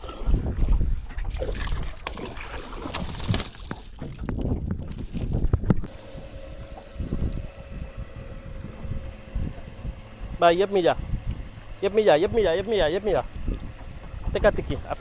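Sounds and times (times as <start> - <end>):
water splashing: 0.0 - 5.8
wind on microphone: 0.0 - 15.0.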